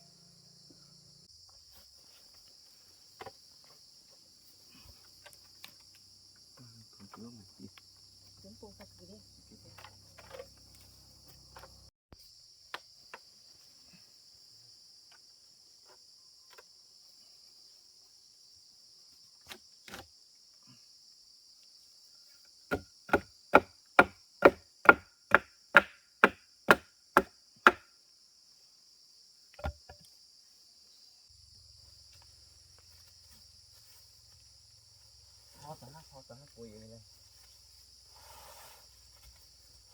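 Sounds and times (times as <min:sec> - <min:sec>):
tool striking wood: 0:22.7 - 0:27.8, 0:29.6 - 0:30.0.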